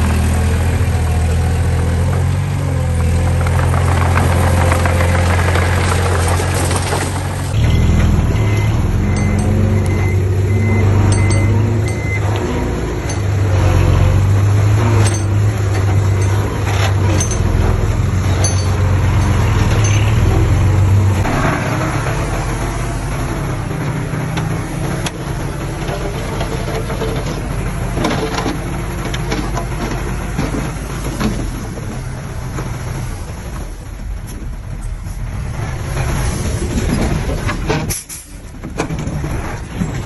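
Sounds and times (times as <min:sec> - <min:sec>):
diesel machinery engine drone: 0:00.0 - 0:40.0
sharp metal clanks: 0:07.6 - 0:09.7, 0:15.0 - 0:20.4.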